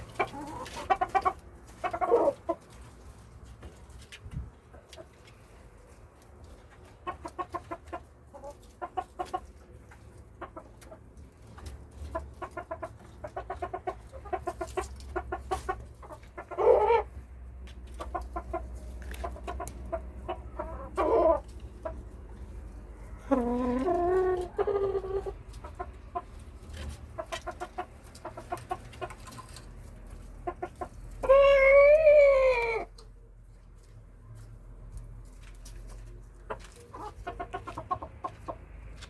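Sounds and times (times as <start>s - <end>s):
chickens clucking: 0.0s - 39.0s
chicken long loud call: 31.2s - 32.9s.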